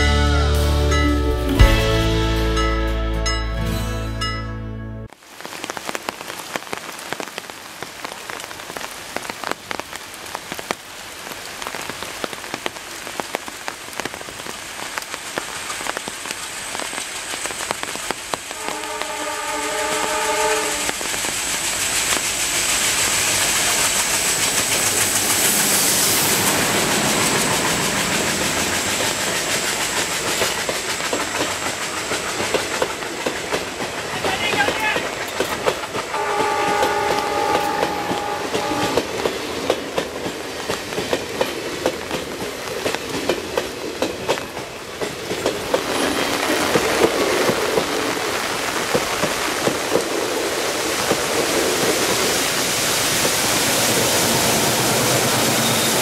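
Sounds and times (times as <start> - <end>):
heavy rain pattering: 5.1 - 56.0
locomotive horn: 18.6 - 21.0, 36.1 - 39.1
locomotive passing: 18.6 - 56.0
train wheel clatter: 20.8 - 56.0.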